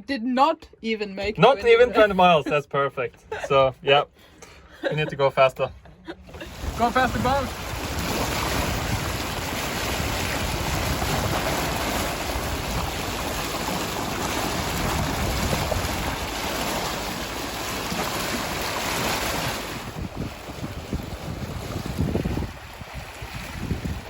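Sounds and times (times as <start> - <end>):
water rushing past boat: 6.2 - 24.0
wind buffeting microphone: 6.3 - 24.0.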